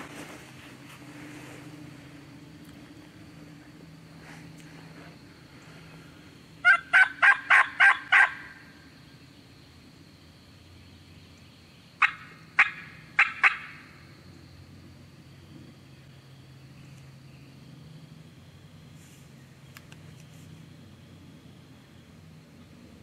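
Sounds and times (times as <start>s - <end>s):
turkey yelps: 6.6s - 8.6s, 12.0s - 13.8s.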